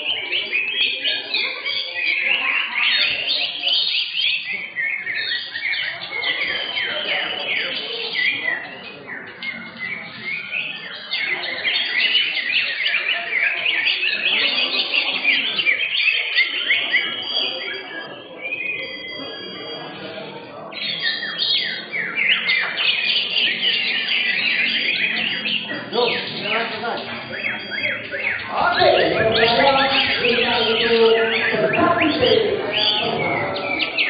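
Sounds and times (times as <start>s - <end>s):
birds chirping and whistling: 0.0s - 34.0s.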